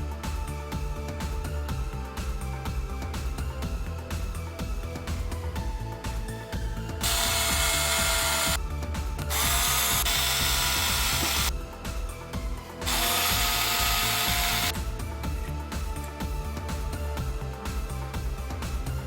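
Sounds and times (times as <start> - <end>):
background music: 0.0 - 19.0
power drill motor whining: 7.0 - 8.6, 9.3 - 11.5, 12.8 - 14.7.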